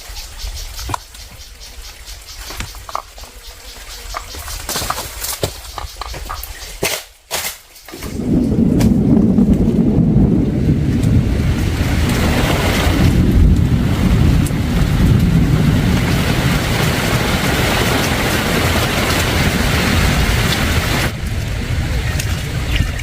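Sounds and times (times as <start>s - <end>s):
wind rumbling on microphone: 7.9s - 23.0s
heavy rain: 8.0s - 23.0s.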